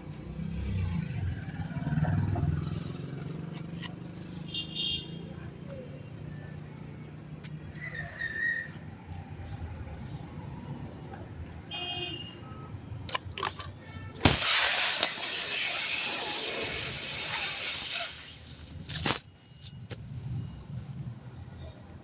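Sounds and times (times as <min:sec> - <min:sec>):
compressed air hissing: 0:13.9 - 0:19.3.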